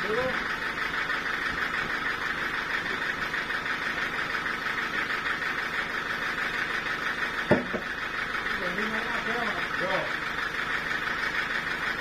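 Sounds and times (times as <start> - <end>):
sawmill running: 0.0 - 12.0.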